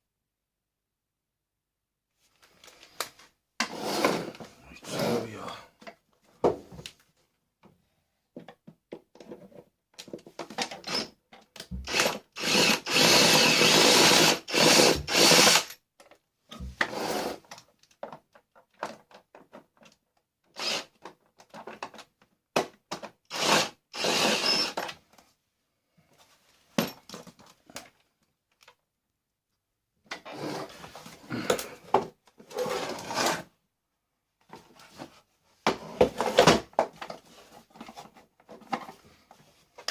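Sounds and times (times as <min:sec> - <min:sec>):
plastic parts clicking and clattering: 0:08.4 - 0:11.9, 0:17.4 - 0:23.3, 0:35.7 - 0:39.9
power drill running: 0:10.8 - 0:11.1, 0:11.9 - 0:15.7, 0:20.6 - 0:20.9, 0:23.3 - 0:24.8.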